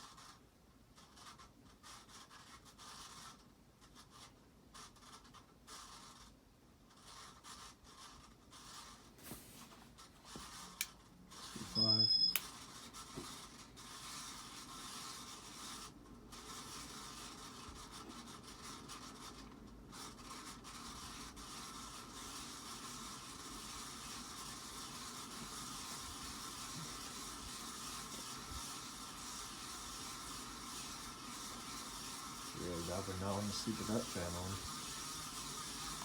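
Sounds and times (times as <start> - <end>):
ceiling fan bearing grinding: 22.4 - 36.0.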